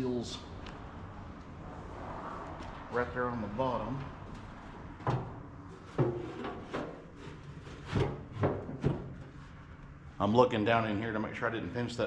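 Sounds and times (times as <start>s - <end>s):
knocks and clunks of box fitting: 5.0s - 9.2s.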